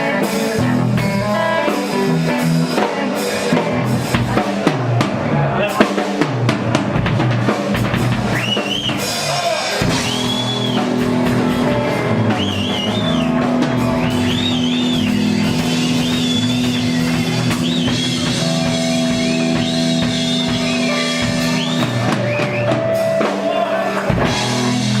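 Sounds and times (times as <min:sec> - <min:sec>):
blues rock band playing: 0:00.0 - 0:25.0
lead guitar bending notes: 0:09.8 - 0:25.0.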